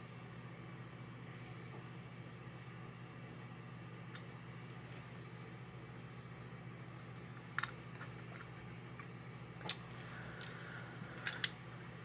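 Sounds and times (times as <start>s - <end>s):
small metal parts clicking: 9.6s - 11.6s.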